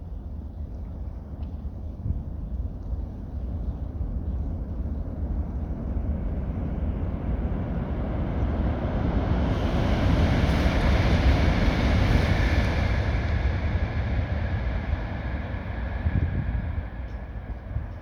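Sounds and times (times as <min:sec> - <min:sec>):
train rushing rumble: 0:04.8 - 0:18.0.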